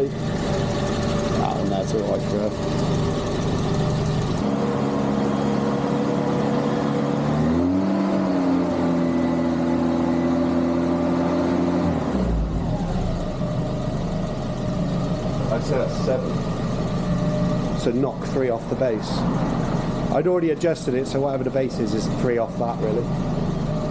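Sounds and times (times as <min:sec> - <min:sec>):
car engine running: 0:00.0 - 0:23.9.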